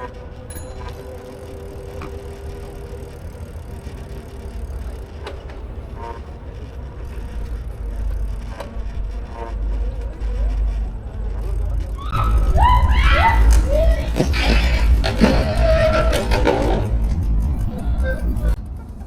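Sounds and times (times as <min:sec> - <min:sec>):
steady tone: 0:00.0 - 0:11.8
bicycle road rumble: 0:00.0 - 0:19.0
wind: 0:00.0 - 0:19.0.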